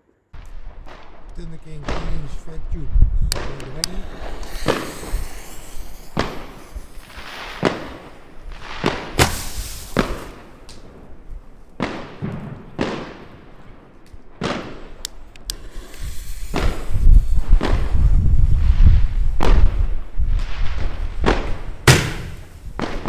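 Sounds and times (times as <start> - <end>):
fireworks bangs with echo: 3.4 - 10.6, 15.6 - 18.0, 21.5 - 23.0.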